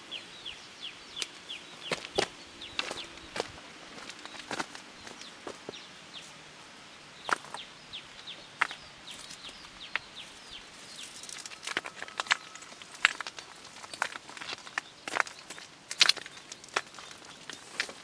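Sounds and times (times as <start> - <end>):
bird chirping: 0.0 - 18.0
sharp snaps and knocks: 11.0 - 18.0.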